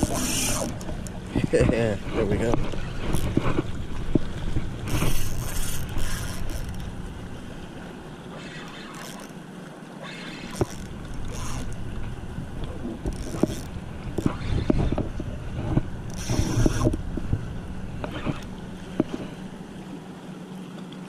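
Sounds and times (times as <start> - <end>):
wind buffeting microphone: 0.0 - 7.3, 10.7 - 19.4.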